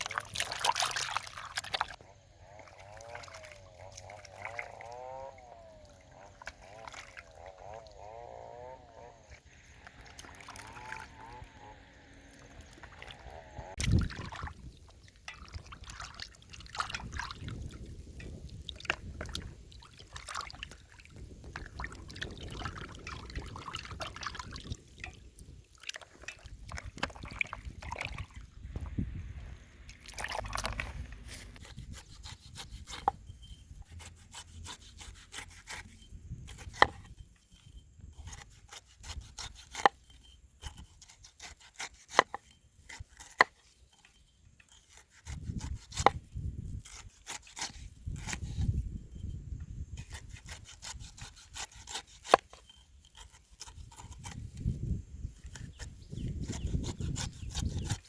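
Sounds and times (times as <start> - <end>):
water sounds: 0.0 - 2.0, 2.6 - 5.1, 5.8 - 8.0, 9.3 - 31.6.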